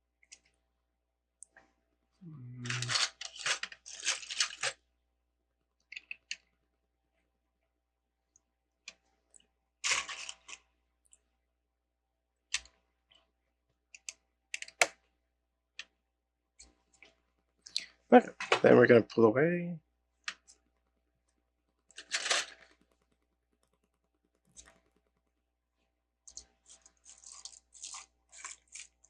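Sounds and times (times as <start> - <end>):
plastic bricks clicking and rattling: 2.6 - 4.8.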